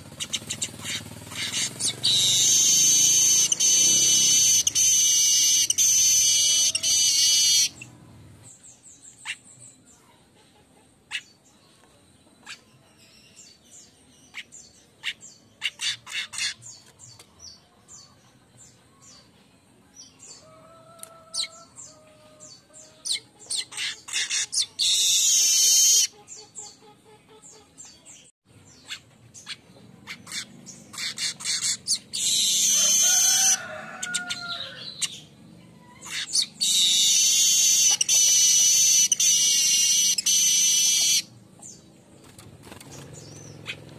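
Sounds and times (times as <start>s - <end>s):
bird singing chattering and buzzing: 0.0s - 9.7s, 21.4s - 26.8s, 27.4s - 35.3s, 36.0s - 43.9s.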